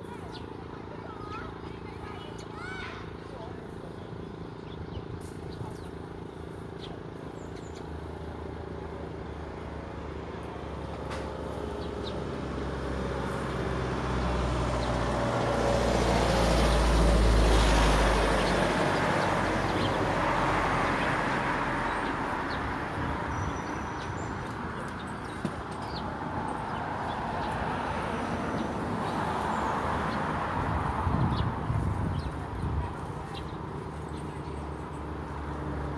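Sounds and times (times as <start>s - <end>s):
vehicle passing by: 8.0s - 35.9s.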